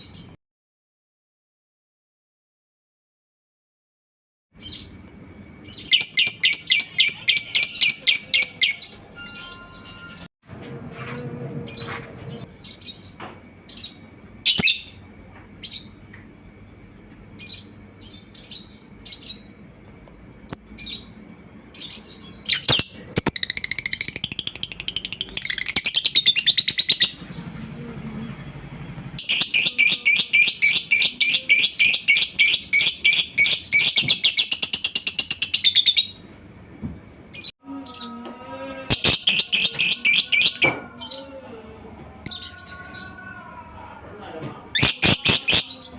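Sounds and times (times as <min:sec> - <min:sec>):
bird chirping: 0:05.6 - 0:10.3, 0:21.8 - 0:27.4
bird chattering trills: 0:21.8 - 0:27.3, 0:29.2 - 0:36.1, 0:38.9 - 0:40.6, 0:44.8 - 0:45.9.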